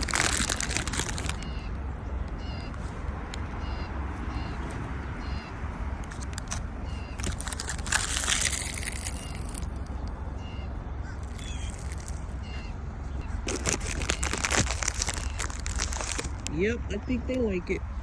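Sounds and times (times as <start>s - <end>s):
steady low rumble: 0.0s - 18.0s
bird chirping: 0.9s - 18.0s.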